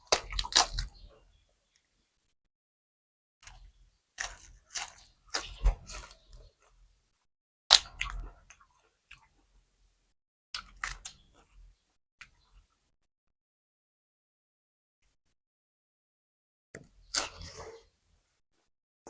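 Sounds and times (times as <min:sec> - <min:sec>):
chewing crunchy food: 0:00.0 - 0:01.2, 0:04.2 - 0:06.8, 0:07.7 - 0:09.4, 0:10.6 - 0:11.7.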